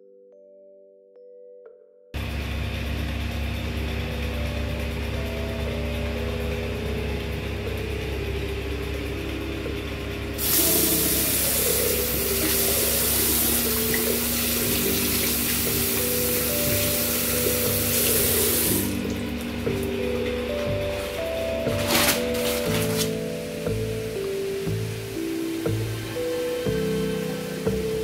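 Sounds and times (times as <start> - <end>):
background music with held notes: 3.3 - 28.0
running water rushing: 9.4 - 28.0.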